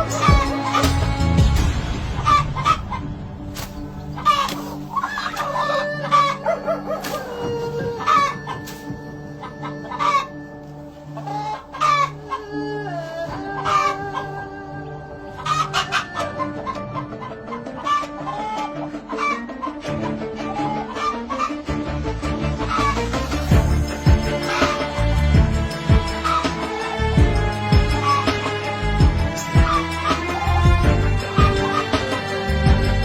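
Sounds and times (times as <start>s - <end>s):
background music: 0.0s - 33.0s
chickens clucking: 3.6s - 10.4s, 11.1s - 12.6s, 13.3s - 14.4s, 15.3s - 21.7s.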